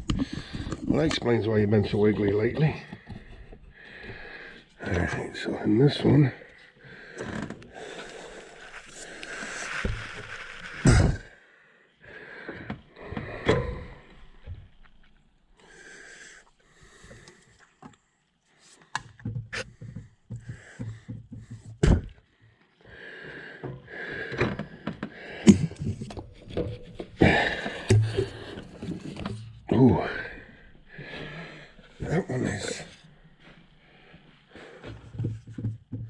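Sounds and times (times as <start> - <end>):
rustling: 7.3 - 11.3.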